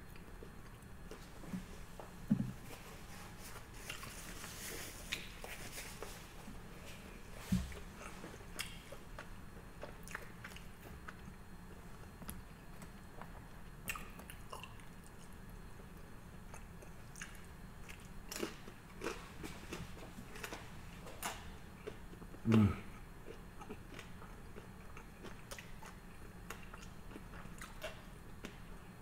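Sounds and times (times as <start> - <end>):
person chewing sushi: 0.1 - 29.0
dull thump: 2.3 - 2.6.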